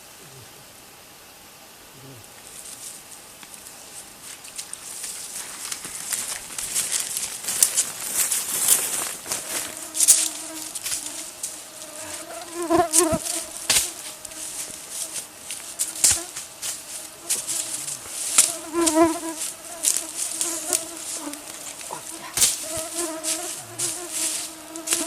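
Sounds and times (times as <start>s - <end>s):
rustles: 0.0s - 25.0s
flying insect buzzing: 5.2s - 25.0s.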